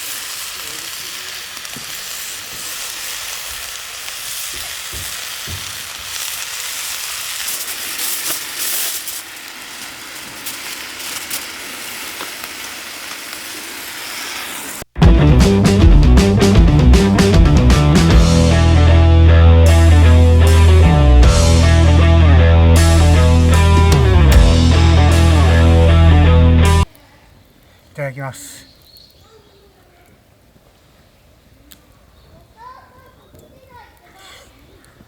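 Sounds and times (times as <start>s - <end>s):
steak sizzling in a pan: 0.0s - 14.9s
loud rock music: 15.0s - 26.9s.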